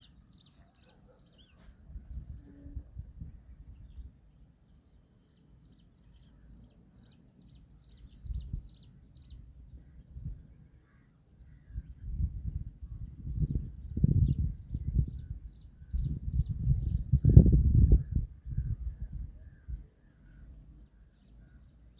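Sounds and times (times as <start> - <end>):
bird chirping: 0.0 - 21.9
wind rumble on microphone: 1.6 - 4.2, 7.9 - 10.6, 11.4 - 20.7.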